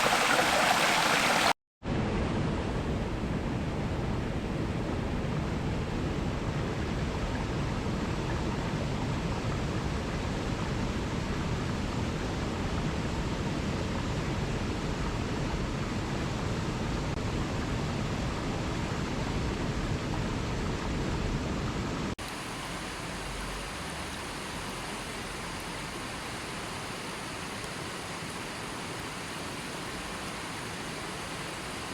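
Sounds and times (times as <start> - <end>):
water rushing: 0.0 - 1.6, 22.2 - 31.9.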